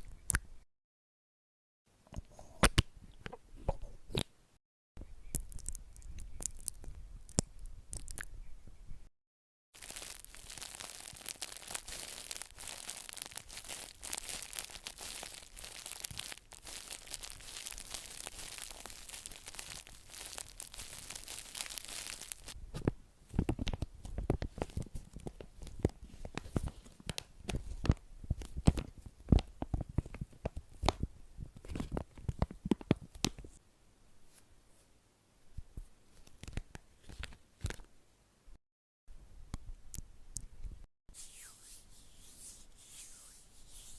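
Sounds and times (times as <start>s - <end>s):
fine crackling and crinkling: 9.8s - 33.6s.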